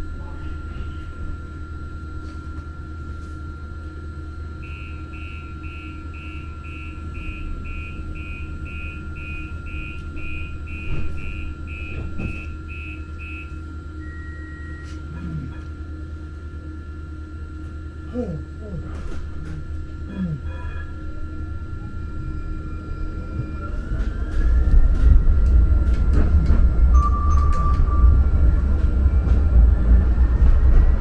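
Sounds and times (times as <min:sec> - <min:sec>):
train humming: 0:00.0 - 0:31.0
door warning beeps: 0:04.6 - 0:15.0, 0:26.1 - 0:28.9.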